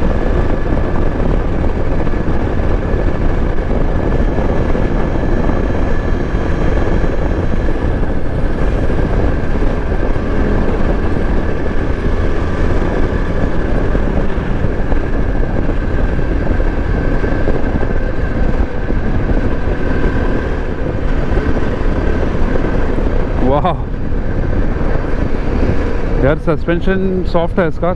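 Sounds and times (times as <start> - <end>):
motorcycle engine running: 4.1 - 23.2.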